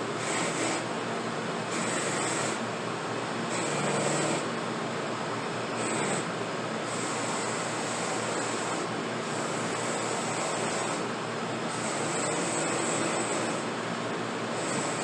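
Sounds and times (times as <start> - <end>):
power tool running: 0.0 - 0.9, 1.6 - 2.7, 3.5 - 4.6, 5.7 - 11.1, 11.7 - 13.7, 14.5 - 15.0.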